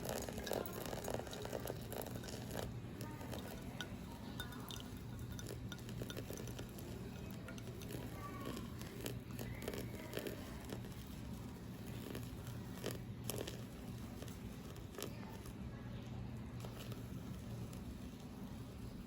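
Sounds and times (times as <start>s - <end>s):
low steady hum: 0.0s - 19.0s
tableware clinking: 0.1s - 2.6s, 3.2s - 8.0s.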